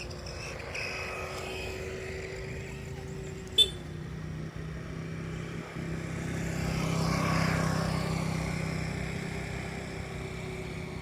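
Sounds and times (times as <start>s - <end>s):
model plane motor and propeller whine: 0.0s - 11.0s.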